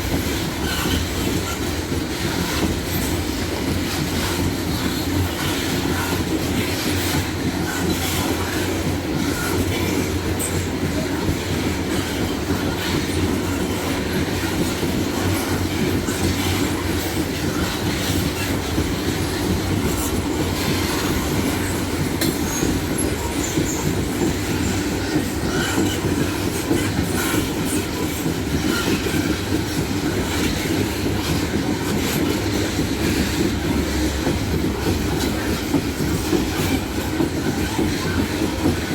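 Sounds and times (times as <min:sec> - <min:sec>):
steel wheels rumbling on rail: 0:00.0 - 0:38.9
wheels clicking over rail joints: 0:00.0 - 0:38.9.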